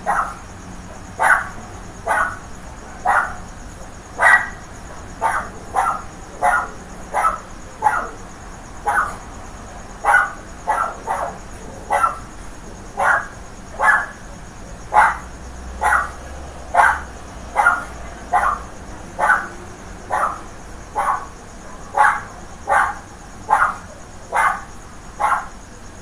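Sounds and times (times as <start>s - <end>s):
dog barking: 0.0s - 0.4s, 1.2s - 2.4s, 3.0s - 3.4s, 4.2s - 4.6s, 5.2s - 8.2s, 8.8s - 9.2s, 10.0s - 12.2s, 13.0s - 14.2s, 14.9s - 20.4s, 21.0s - 25.5s.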